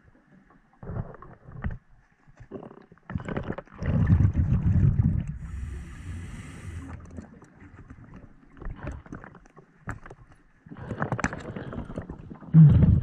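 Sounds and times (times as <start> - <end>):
exhaled bubbles rumbling underwater: 3.2 - 9.5, 10.7 - 13.0
regulator inhalation hiss: 5.4 - 7.0.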